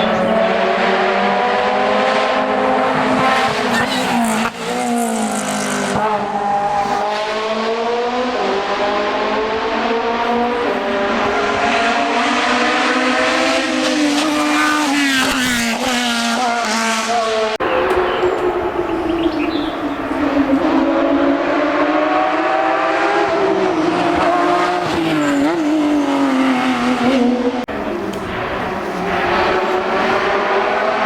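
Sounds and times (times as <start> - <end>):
race car engine running hard: 26.5 - 31.0.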